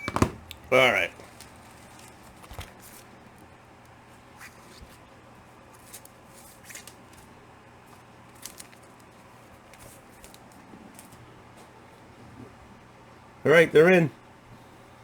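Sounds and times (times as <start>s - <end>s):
low room hum: 0.0s - 15.0s
comic books rustling: 0.1s - 11.6s.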